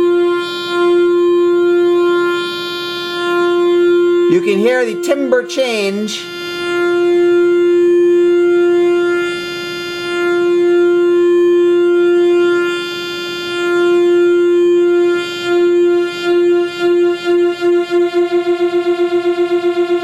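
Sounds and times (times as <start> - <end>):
synth pulse-wave note: 3.2 - 12.9, 13.8 - 20.0.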